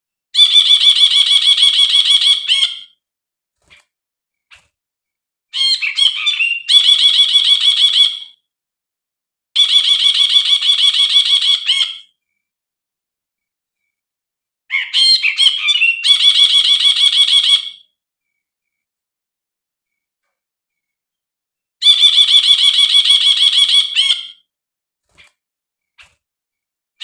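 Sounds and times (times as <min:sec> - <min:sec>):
bird chattering: 0:05.6 - 0:08.1, 0:14.7 - 0:17.8.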